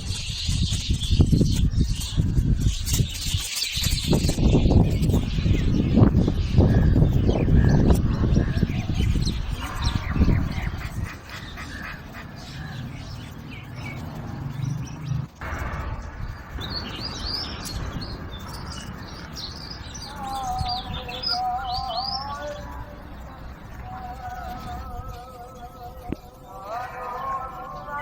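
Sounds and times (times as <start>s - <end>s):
small birds chirping: 0.0s - 28.0s
wavering lower bird warble: 1.0s - 28.0s.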